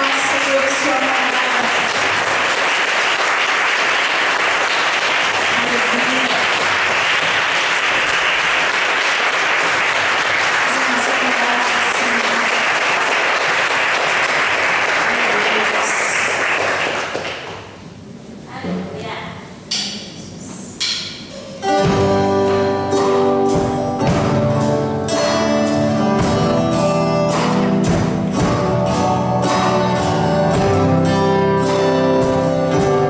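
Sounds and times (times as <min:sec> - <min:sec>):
congregation applauding: 0:00.0 - 0:17.8.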